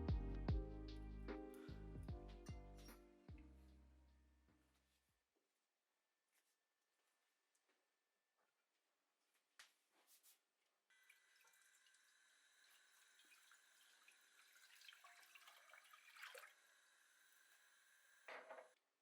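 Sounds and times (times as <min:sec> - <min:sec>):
tap water running into sink: 0:11.0 - 0:17.7.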